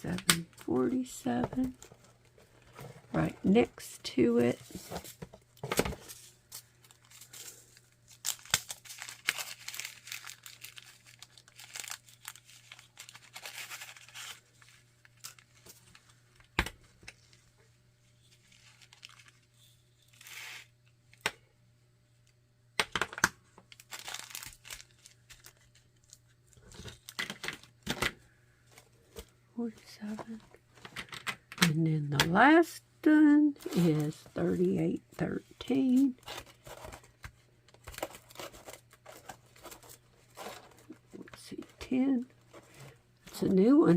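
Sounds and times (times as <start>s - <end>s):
faint steady hum: 0.0s - 43.9s
plastic crinkling and rustling: 4.5s - 20.7s, 23.5s - 31.2s, 35.6s - 43.6s.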